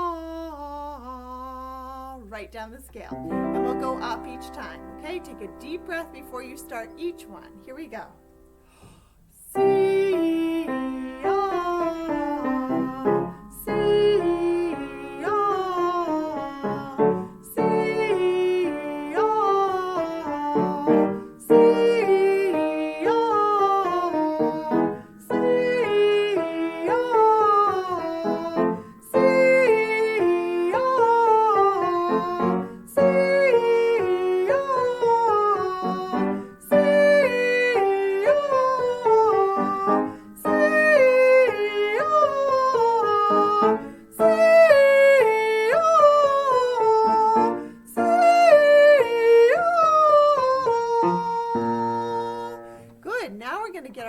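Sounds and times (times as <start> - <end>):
person singing vocal warm-up: 0.0 - 54.0
piano accompaniment: 2.4 - 8.8, 9.5 - 53.8
person breathing: 8.6 - 9.4, 24.8 - 25.2, 40.0 - 40.4, 47.5 - 47.9.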